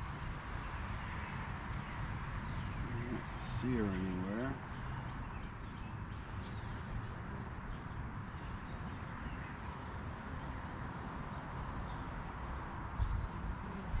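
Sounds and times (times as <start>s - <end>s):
birds chirping: 0.0s - 14.0s
outdoor background hiss: 0.0s - 14.0s.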